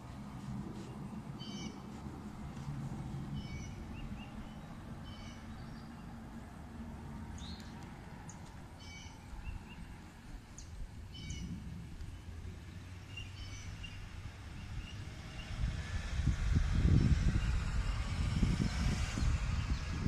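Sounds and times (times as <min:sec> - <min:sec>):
low outdoor rumble: 0:00.0 - 0:20.0
birds chirping: 0:00.7 - 0:02.0, 0:03.2 - 0:06.4, 0:07.3 - 0:15.6.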